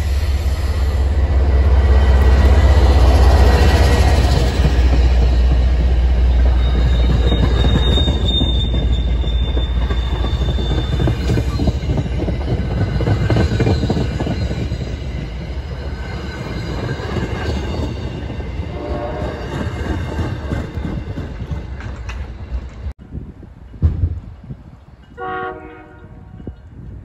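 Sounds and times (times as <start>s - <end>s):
diesel locomotive rumble: 0.0s - 25.3s
train wheels on rail: 0.0s - 27.0s
high wheel squeal: 5.0s - 15.3s.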